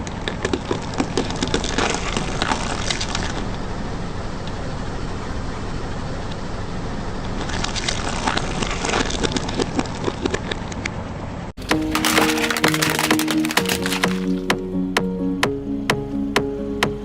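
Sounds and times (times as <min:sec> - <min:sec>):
objects crunching under tyre: 0:00.0 - 0:03.6, 0:07.4 - 0:11.0, 0:11.6 - 0:14.6
car engine running slowly: 0:00.8 - 0:10.4, 0:14.4 - 0:17.0.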